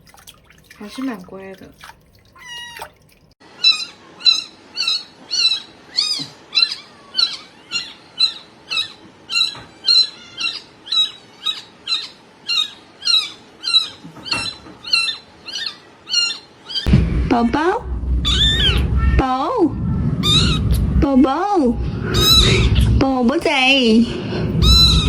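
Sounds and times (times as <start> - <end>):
kitten meowing: 2.4 - 2.9.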